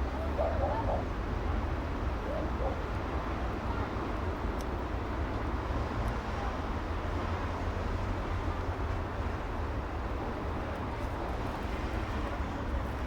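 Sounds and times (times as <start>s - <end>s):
traffic rumble: 0.0s - 4.6s.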